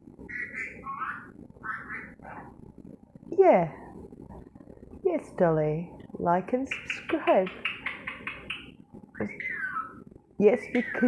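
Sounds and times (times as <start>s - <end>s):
parrot talking: 6.7s - 8.7s, 10.6s - 11.0s.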